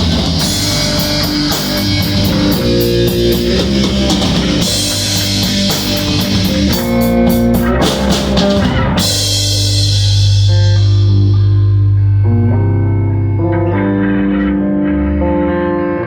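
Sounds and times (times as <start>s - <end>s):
drum kit: 0.0s - 12.4s
bass guitar: 0.0s - 16.0s
electric guitar: 0.0s - 16.0s.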